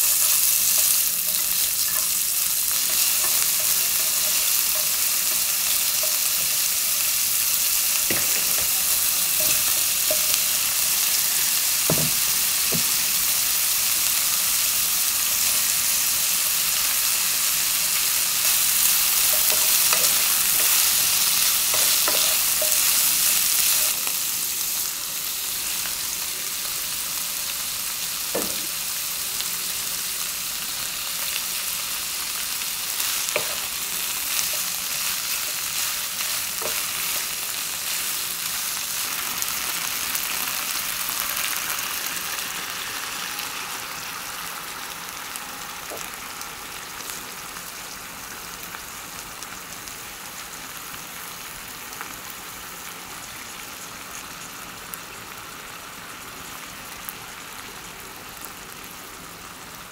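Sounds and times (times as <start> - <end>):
meat and cabbage sizzling in pan: 0.0 - 59.9.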